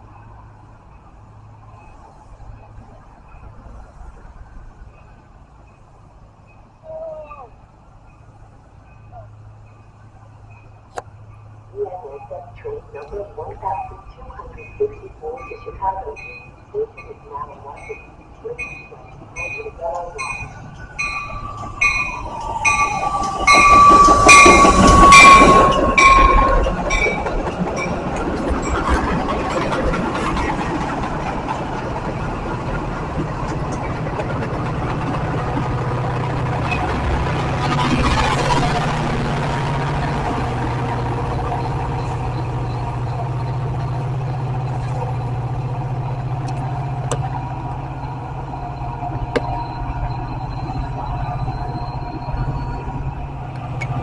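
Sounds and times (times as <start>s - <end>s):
diesel locomotive drone: 0.0s - 54.0s
train cars rushing with wheel clatter: 0.0s - 54.0s
bell ringing: 13.8s - 28.0s.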